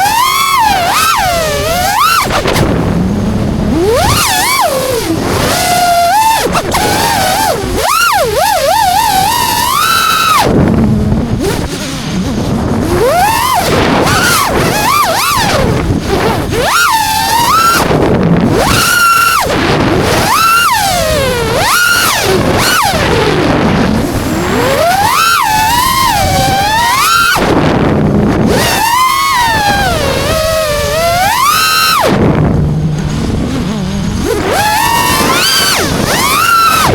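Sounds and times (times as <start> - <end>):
quadcopter motors whining: 0.0 - 36.9
wind rumble on microphone: 0.0 - 36.9
low rushing rumble: 32.1 - 34.5.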